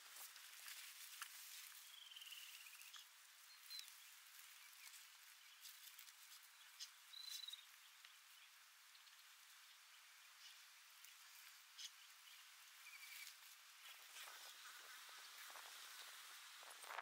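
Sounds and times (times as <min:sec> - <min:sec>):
quiet outdoor hiss: 0:00.0 - 0:17.0
songbird calling: 0:01.6 - 0:15.2.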